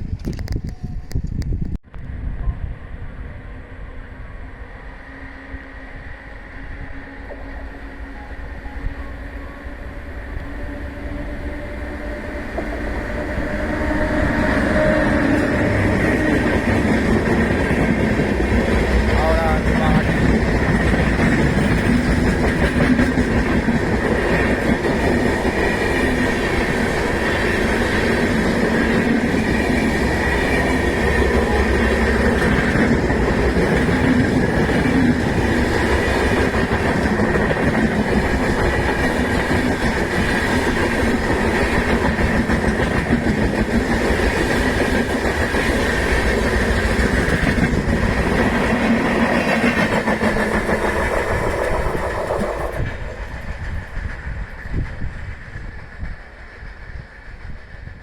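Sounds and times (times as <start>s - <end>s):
train wheels clattering on rails: 12.5s - 58.0s.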